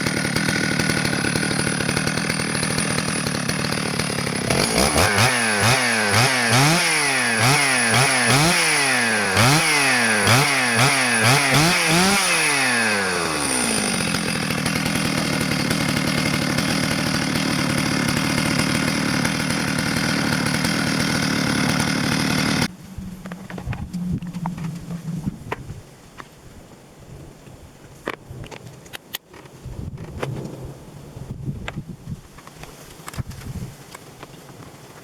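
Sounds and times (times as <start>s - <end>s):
chainsaw engine revving and idling: 0.0s - 22.7s.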